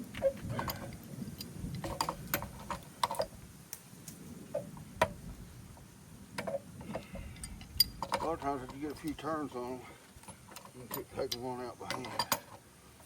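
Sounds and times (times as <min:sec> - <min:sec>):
metal valves and tools clicking: 0:06.4 - 0:09.2, 0:10.2 - 0:12.6.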